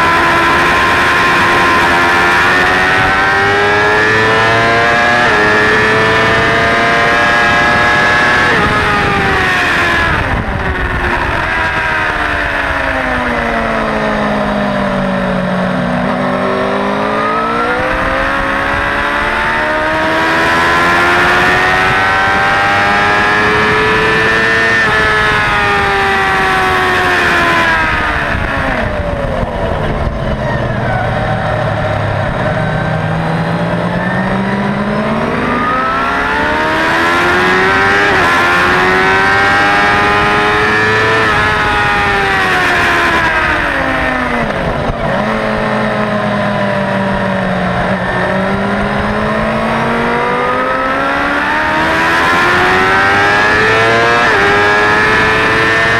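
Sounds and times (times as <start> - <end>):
motorcycle engine: 0.0 - 55.9
wind rush: 5.3 - 13.6, 21.4 - 50.4.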